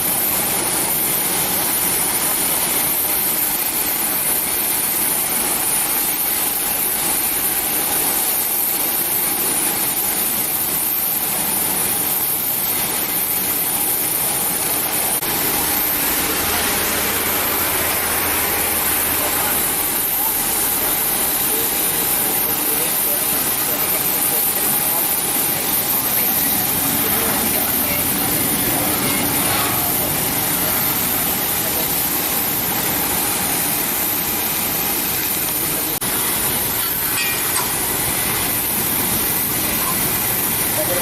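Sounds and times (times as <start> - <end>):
jet engines whining: 13.3 - 41.0.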